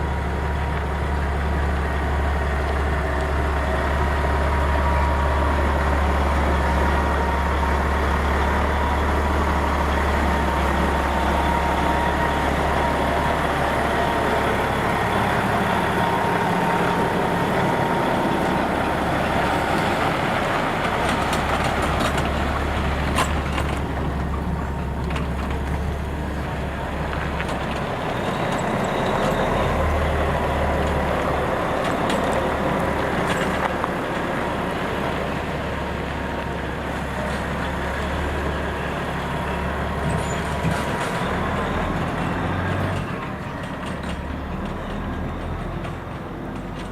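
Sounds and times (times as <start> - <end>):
truck engine rumble: 0.0 - 46.9
tyre and road noise: 0.0 - 46.9.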